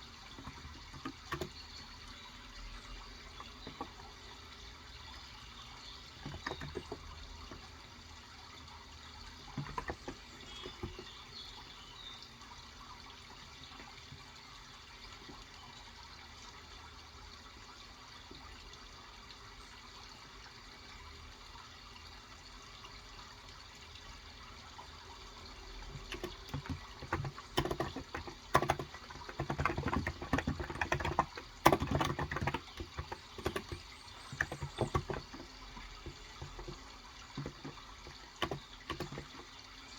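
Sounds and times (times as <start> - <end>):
trickling water: 0.0 - 39.9
keyboard typing: 0.2 - 1.8, 6.2 - 7.6, 9.6 - 11.2, 25.8 - 39.6.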